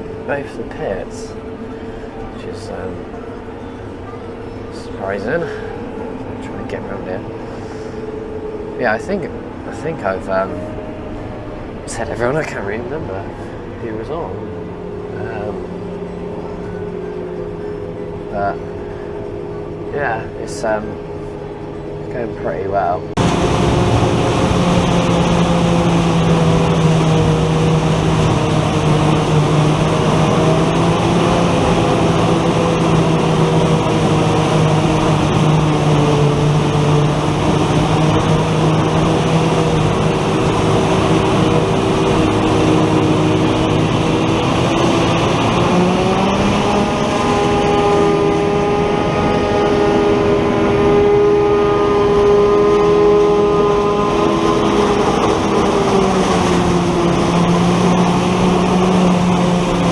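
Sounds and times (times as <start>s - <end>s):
tractor engine running: 0.0s - 22.2s, 23.1s - 59.9s.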